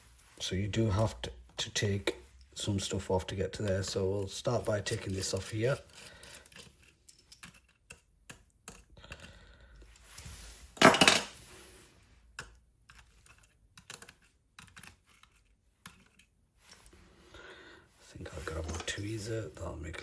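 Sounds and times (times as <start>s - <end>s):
clicks and taps of plastic parts: 6.4s - 9.4s, 12.3s - 16.3s.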